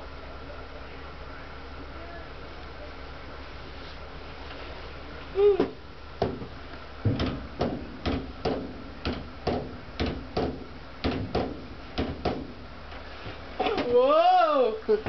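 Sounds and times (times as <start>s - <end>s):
low steady hum: 0.0s - 15.0s
sharp ringing knocks: 6.2s - 12.6s.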